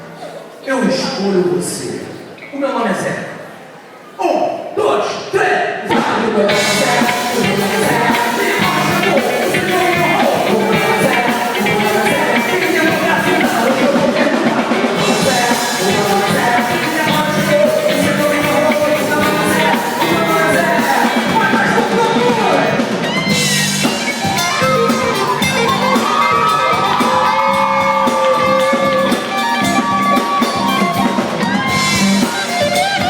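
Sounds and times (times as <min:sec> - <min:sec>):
person singing: 0:05.9 - 0:22.8, 0:23.8 - 0:33.0
praise band playing: 0:06.0 - 0:33.0.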